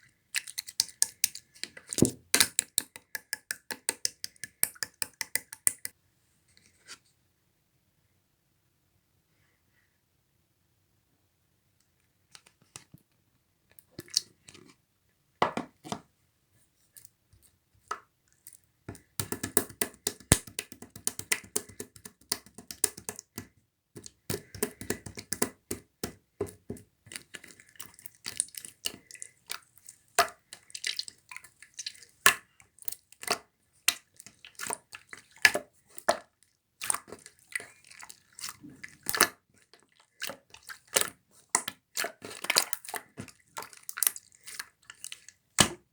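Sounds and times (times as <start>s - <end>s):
slime sticky clicks and pops: 2.0s - 5.9s.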